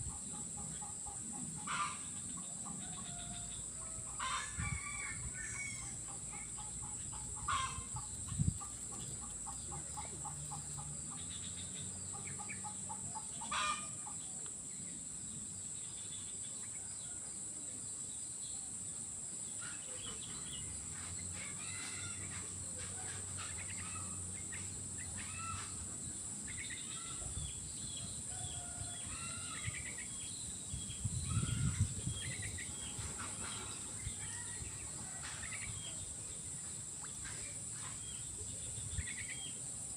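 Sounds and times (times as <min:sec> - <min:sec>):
bird calls: 0:07.2 - 0:14.0.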